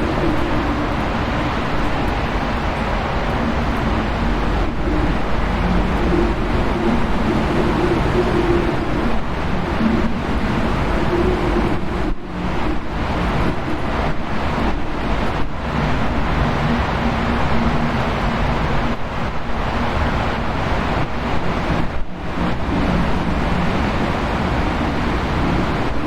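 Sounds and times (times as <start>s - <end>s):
low wavering tone: 0.0s - 13.7s
wind blowing loudly: 0.0s - 26.0s.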